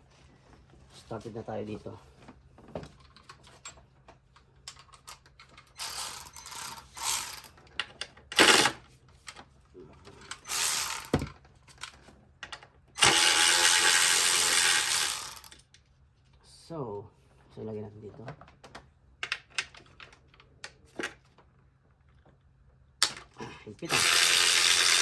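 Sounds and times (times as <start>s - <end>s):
ratchet wrench clicking: 5.8s - 7.5s, 8.4s - 8.8s, 10.4s - 11.3s, 13.0s - 15.6s, 23.9s - 25.0s.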